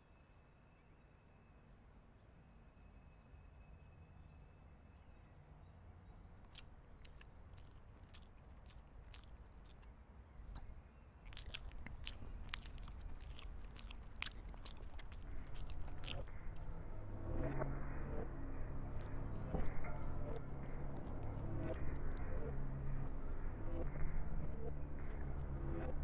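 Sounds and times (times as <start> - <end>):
person chewing with mouth open: 6.4 - 16.3.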